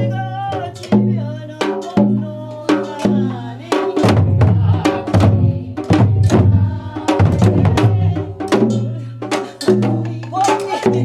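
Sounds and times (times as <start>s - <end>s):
group singing folk song: 0.0s - 11.0s
hourglass drums beaten: 4.0s - 8.9s.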